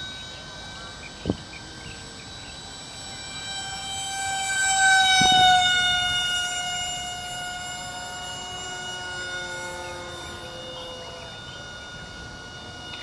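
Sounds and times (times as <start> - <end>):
model airplane motor whine: 0.0 - 13.0.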